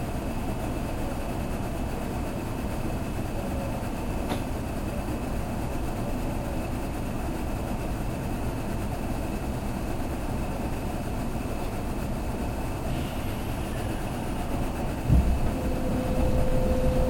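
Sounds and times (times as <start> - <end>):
train wheels rumbling: 12.8 - 17.0
faint high whine: 13.4 - 17.0.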